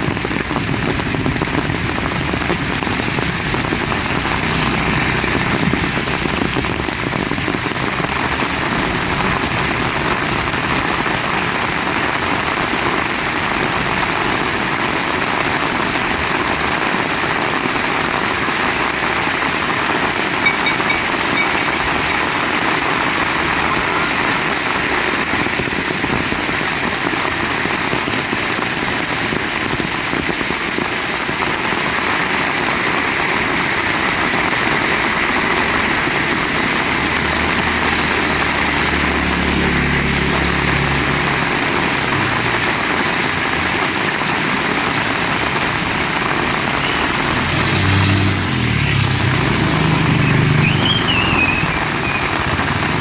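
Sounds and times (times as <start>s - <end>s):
heavy rain falling: 0.0s - 53.0s
engine passing: 2.3s - 12.5s, 18.7s - 25.0s, 35.1s - 53.0s.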